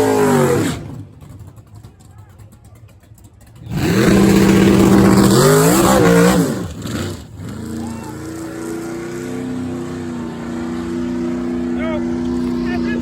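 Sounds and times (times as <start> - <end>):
racing engine at full throttle: 0.0 - 1.8, 3.4 - 13.0
quieter engine running: 0.0 - 13.0.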